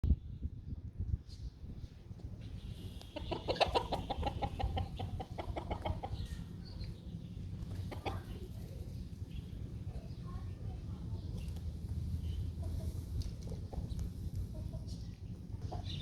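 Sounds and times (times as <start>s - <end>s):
bird clucking: 2.8s - 9.5s, 12.2s - 16.0s.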